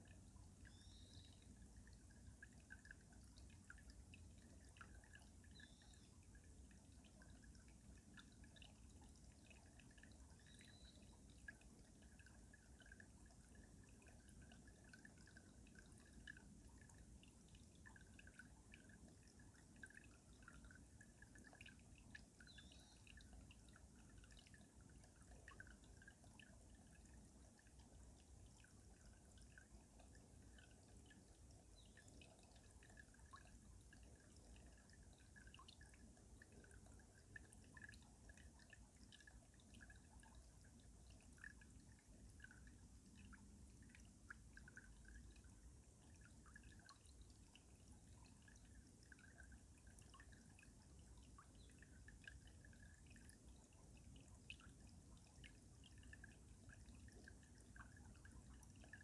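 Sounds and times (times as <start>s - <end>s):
water drips and plinks: 0.0s - 59.0s
stream running under ice: 0.2s - 7.1s.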